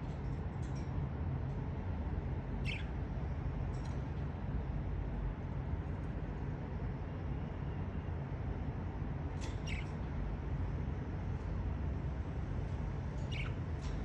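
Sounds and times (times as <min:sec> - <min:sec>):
steady low hum: 0:00.0 - 0:14.0
budgerigar chirps: 0:02.6 - 0:02.9, 0:09.6 - 0:09.9, 0:13.2 - 0:13.6.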